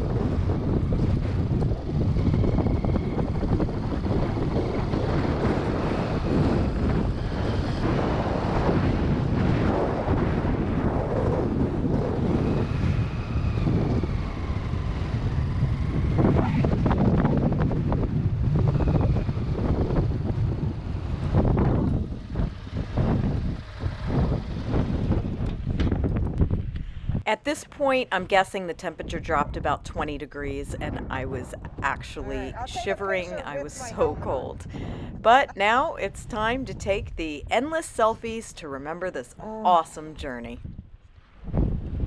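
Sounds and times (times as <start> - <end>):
motorcycle engine running: 0.0 - 26.8
wind buffeting on microphone: 0.0 - 27.3, 27.9 - 42.0.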